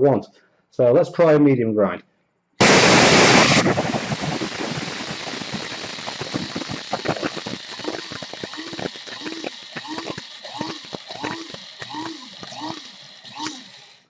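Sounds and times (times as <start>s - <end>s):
electric coffee grinder running: 2.6s - 14.0s
coffee beans rattling in grinder: 3.0s - 14.0s.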